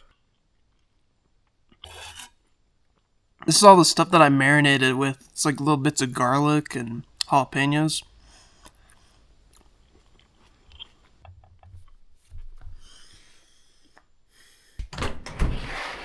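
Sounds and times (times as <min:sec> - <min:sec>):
person chewing: 0:08.6 - 0:12.0.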